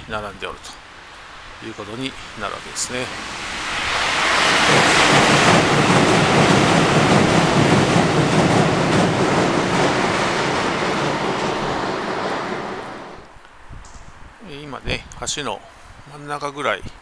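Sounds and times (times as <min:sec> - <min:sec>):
train wheels rattling over bridge: 0:02.7 - 0:13.3.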